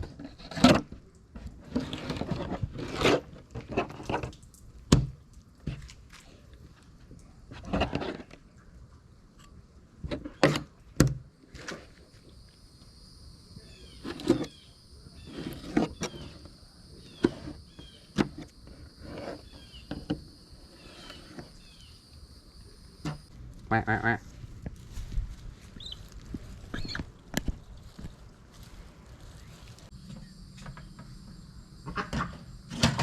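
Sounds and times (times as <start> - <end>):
ducks quacking: 23.6 - 24.4
small chirps: 24.2 - 32.0.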